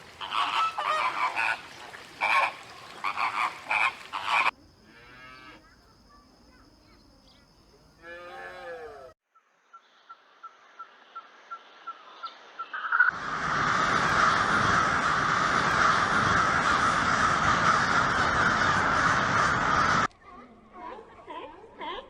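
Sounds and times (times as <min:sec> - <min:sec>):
animal call: 0:00.0 - 0:06.6, 0:08.0 - 0:09.2.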